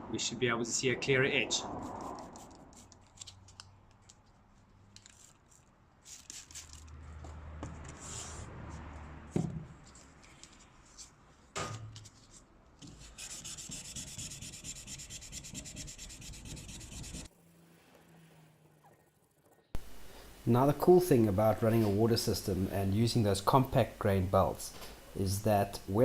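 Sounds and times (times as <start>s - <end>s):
sandpaper rubbing on steel blade: 6.0s - 6.9s, 13.0s - 17.3s.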